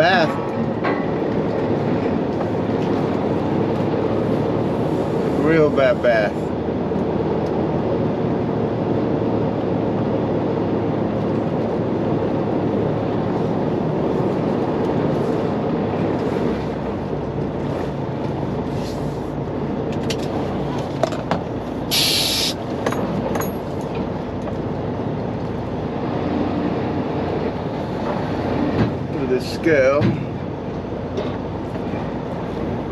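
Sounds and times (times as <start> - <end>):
truck diesel engine running: 9.7 - 29.3
air hiss burst: 21.9 - 22.6.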